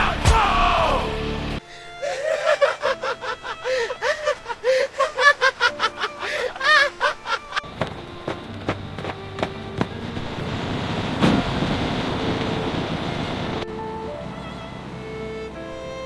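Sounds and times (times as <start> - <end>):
person laughing high-pitched: 1.9 - 7.6.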